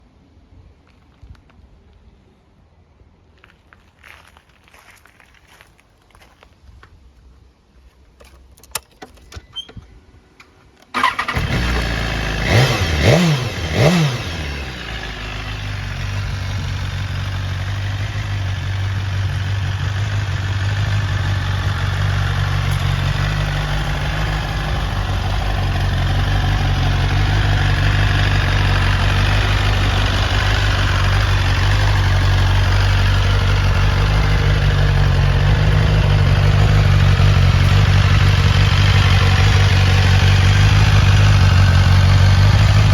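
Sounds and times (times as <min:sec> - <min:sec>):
motorcycle engine revving and idling: 0:11.0 - 0:42.9.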